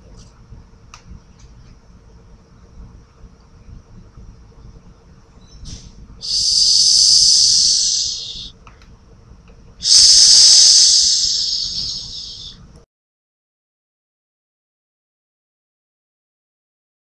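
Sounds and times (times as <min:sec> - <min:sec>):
snake hissing: 0:06.2 - 0:08.5, 0:09.8 - 0:12.6.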